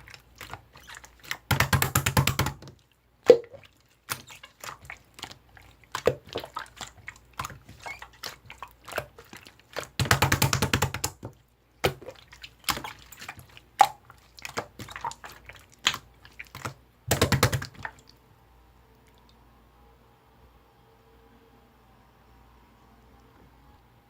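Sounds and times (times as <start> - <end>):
slime squished by hand: 0.0 - 18.2.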